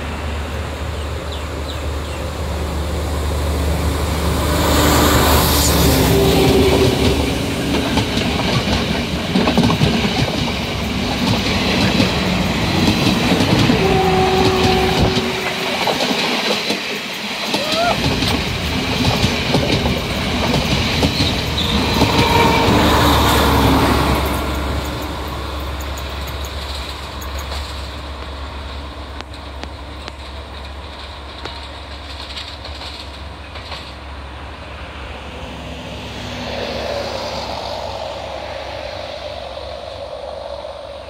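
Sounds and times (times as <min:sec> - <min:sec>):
wheels clacking over rail joints: 0:06.3 - 0:34.4
low engine drone: 0:34.4 - 0:41.0.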